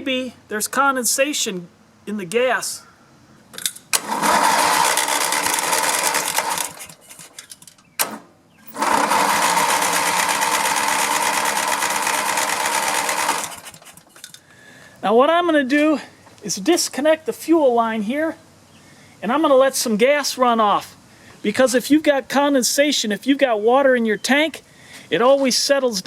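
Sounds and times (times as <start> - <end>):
lawn mower starter cranking engine: 3.9 - 14.4.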